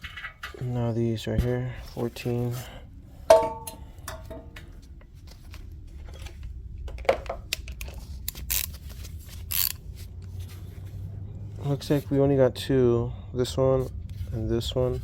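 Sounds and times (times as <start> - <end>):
short scraping rasps: 8.4 - 9.8.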